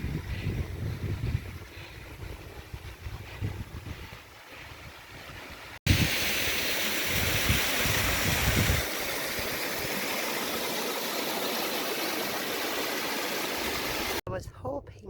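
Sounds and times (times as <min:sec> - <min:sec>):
wind buffeting microphone: 0:00.0 - 0:06.3, 0:07.0 - 0:10.0
stream rushing: 0:04.2 - 0:14.2.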